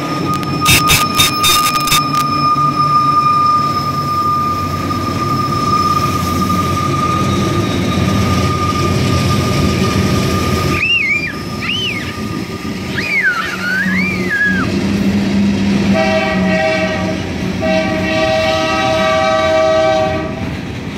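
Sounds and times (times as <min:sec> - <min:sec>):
high wheel squeal: 0:00.0 - 0:14.9
train wheels rumbling on rails: 0:00.0 - 0:20.9.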